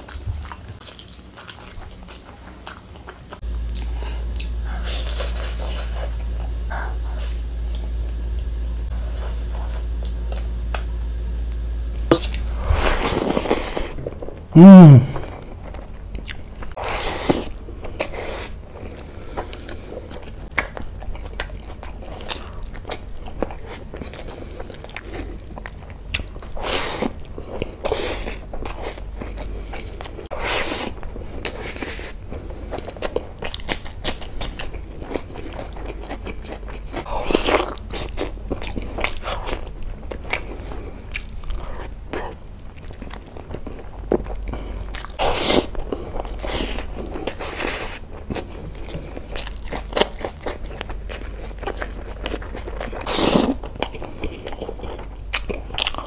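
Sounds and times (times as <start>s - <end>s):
wet chewing and lip smacking: 31.4s - 56.0s.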